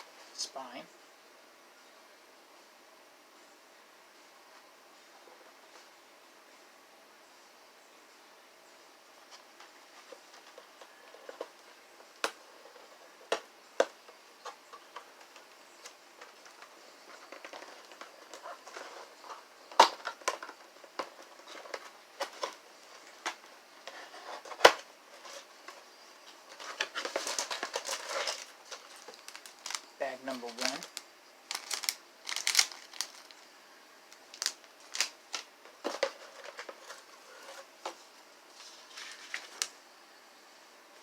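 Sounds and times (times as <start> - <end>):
cardboard rustling: 9.2 - 33.5, 34.2 - 39.8
plastic bags crinkling: 26.5 - 33.5, 34.1 - 37.6.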